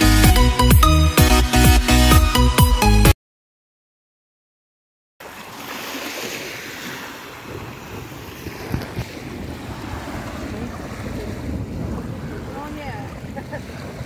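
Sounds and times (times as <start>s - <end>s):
sea waves: 5.2s - 14.0s
wind buffeting microphone: 7.2s - 14.0s.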